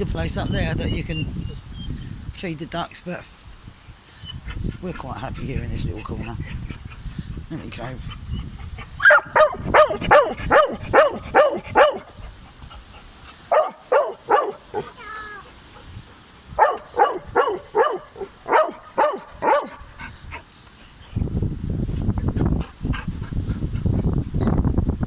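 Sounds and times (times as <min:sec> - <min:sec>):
dog barking in sharp yaps: 0:09.0 - 0:12.0, 0:13.5 - 0:14.9, 0:16.6 - 0:19.8.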